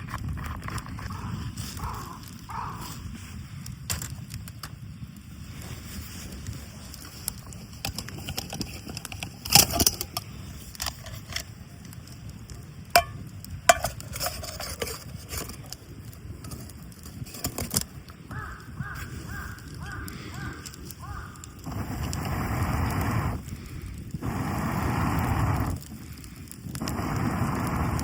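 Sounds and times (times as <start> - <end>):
camp gear clinking and knocking: 7.4 - 11.5, 12.9 - 15.7.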